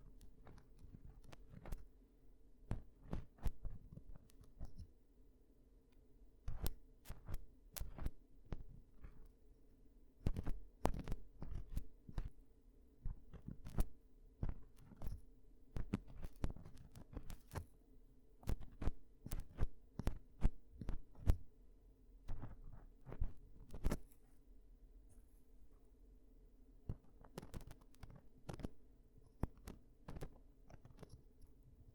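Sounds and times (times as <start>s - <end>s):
faint steady hum: 0.0s - 31.9s.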